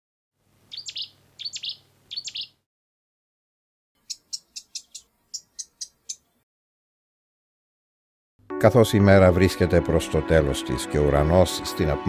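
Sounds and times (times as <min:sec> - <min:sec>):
small birds calling: 0:00.6 - 0:02.6, 0:04.0 - 0:06.4
sharp high bird chirps: 0:00.7 - 0:02.6, 0:04.0 - 0:06.3.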